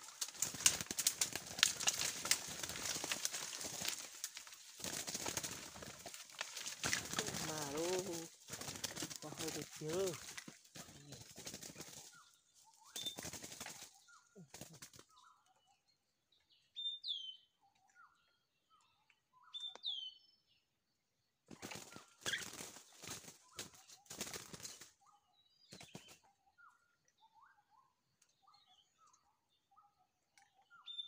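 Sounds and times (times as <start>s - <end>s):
loud rustling: 0.0s - 11.6s
birds calling: 0.0s - 15.8s, 21.5s - 31.0s.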